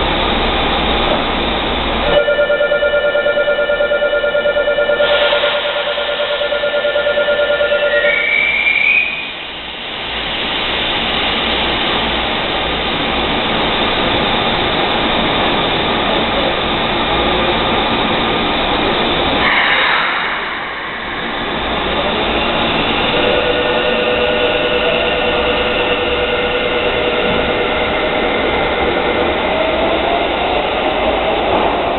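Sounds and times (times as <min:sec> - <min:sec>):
electric train passing: 0:00.0 - 0:31.9
platform departure bell: 0:01.8 - 0:08.2, 0:12.6 - 0:31.9
short high tone: 0:02.1 - 0:08.4.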